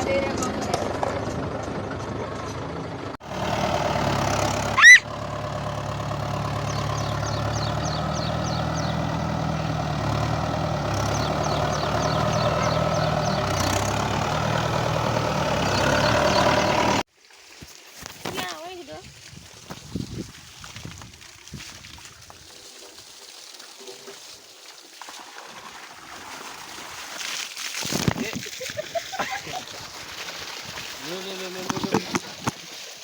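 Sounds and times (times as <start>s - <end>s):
tractor engine running: 1.2s - 17.0s
loud rising squeal: 4.7s - 5.0s.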